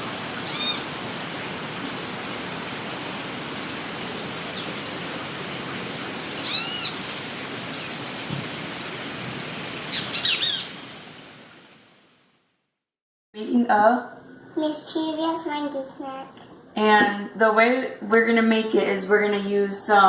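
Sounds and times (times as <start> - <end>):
birds chirping: 0.0 - 11.2
steady hiss: 0.0 - 12.4.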